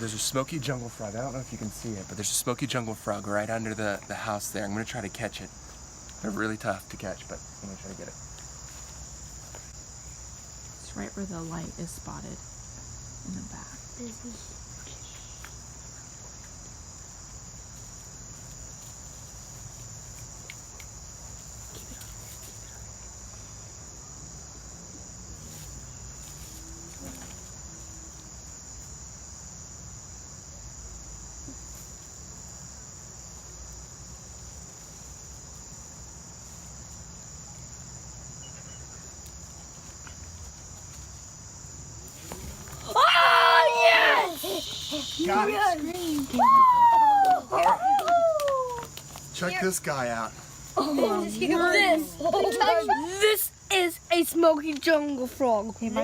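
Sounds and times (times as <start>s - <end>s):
insect chorus trilling: 0.0s - 56.0s.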